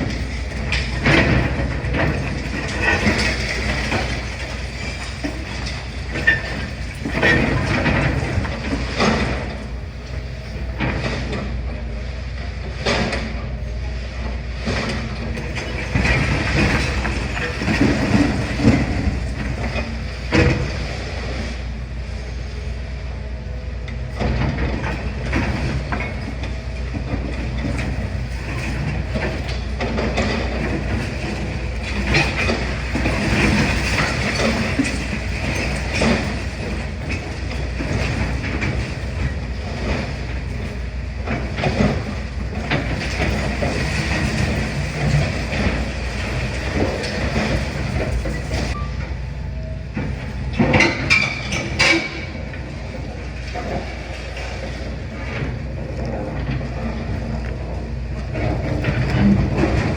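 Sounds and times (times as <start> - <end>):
rubble and metal clanking: 0.0 - 59.9.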